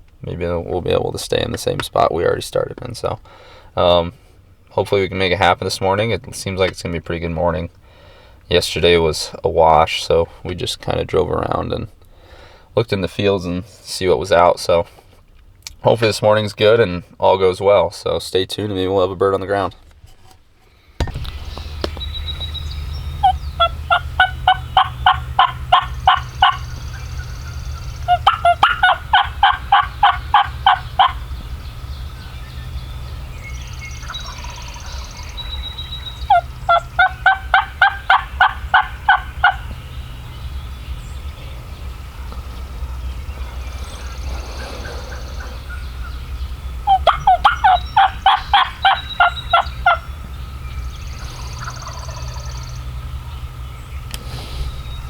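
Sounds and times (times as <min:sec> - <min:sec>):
steady low rumble: 0:21.0 - 0:55.0
wild turkey yelping: 0:21.3 - 0:55.0.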